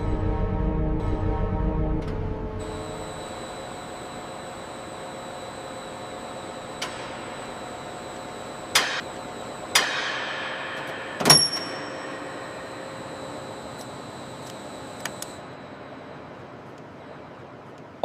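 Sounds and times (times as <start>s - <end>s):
mechanical hum: 0.0s - 18.0s
sharp metallic clanks: 9.7s - 12.4s
brief high ring: 11.2s - 12.6s.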